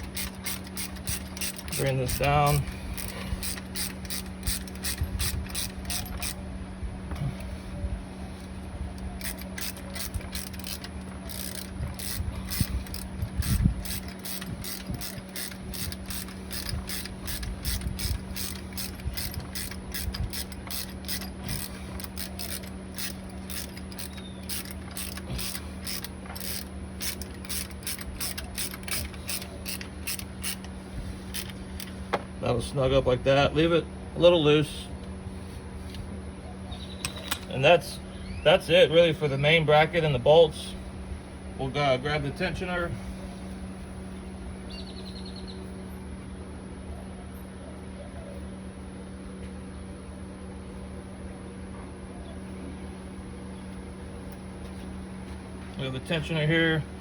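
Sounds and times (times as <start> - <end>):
ratchet wrench clicking: 0.0 - 6.4, 9.2 - 32.0.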